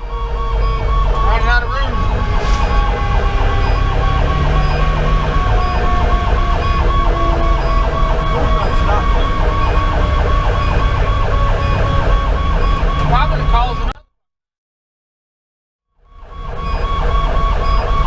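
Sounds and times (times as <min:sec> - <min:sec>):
electronic siren cycling rapidly: 0:00.0 - 0:13.9, 0:16.0 - 0:18.0
diesel truck engine rumble: 0:00.0 - 0:14.0
low siren tone sliding down: 0:00.0 - 0:14.0.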